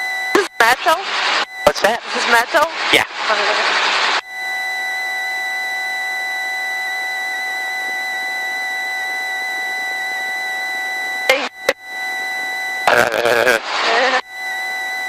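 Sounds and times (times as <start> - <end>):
high whine: 0.0 - 15.0
intercom hiss: 12.8 - 14.2.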